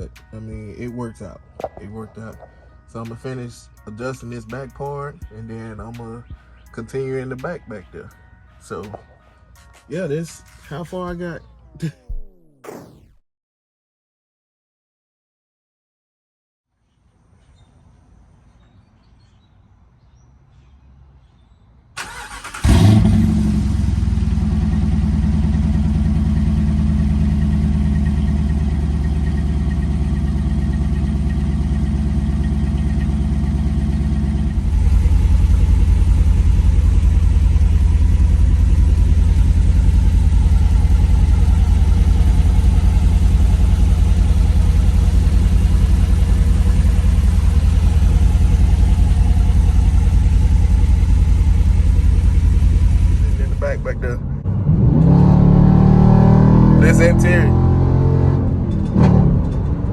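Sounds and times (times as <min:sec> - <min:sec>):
car engine starting and idling: 0:22.0 - 0:59.9.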